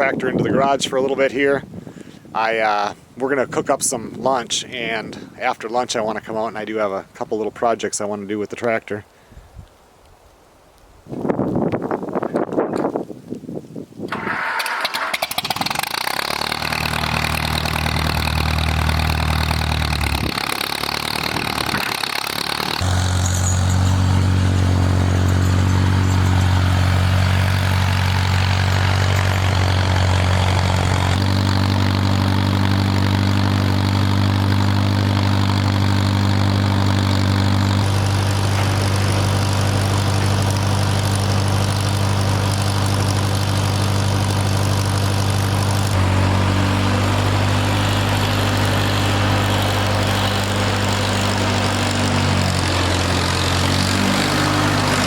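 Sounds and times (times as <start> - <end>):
tractor engine running: 14.1 - 55.0.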